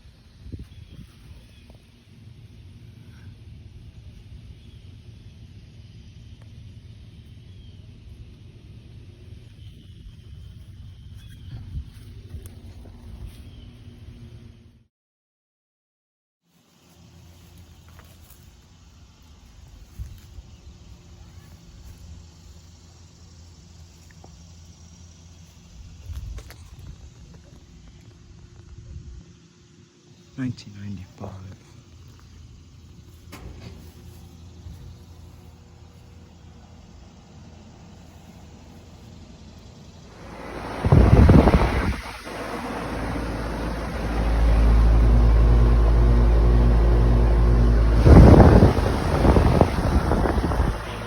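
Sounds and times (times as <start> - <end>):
wind rumble on microphone: 0.0 - 2.0, 9.5 - 13.6, 25.8 - 29.4, 40.1 - 51.0
compressor hum: 30.4 - 51.0
fan rushing: 32.4 - 51.0.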